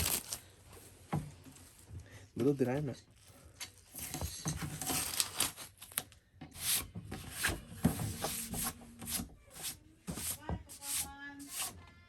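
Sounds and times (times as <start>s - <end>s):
tape and cardboard ripping: 0.0s - 0.5s, 4.0s - 11.7s.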